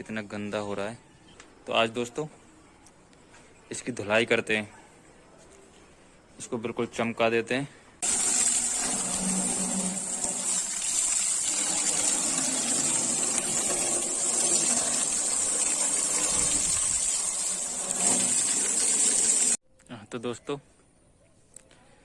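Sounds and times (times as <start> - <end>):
water spraying: 8.0 - 19.6.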